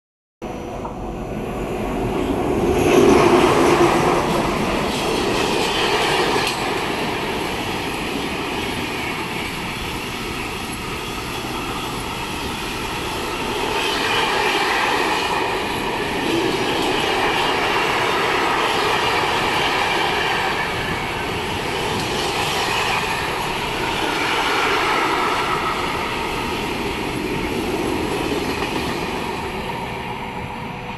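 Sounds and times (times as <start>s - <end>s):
freight train wheels on rails: 0.4s - 30.9s.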